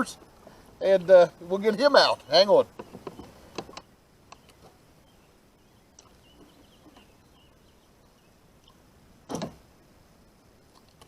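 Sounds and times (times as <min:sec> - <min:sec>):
short thump: 0:09.3 - 0:09.6.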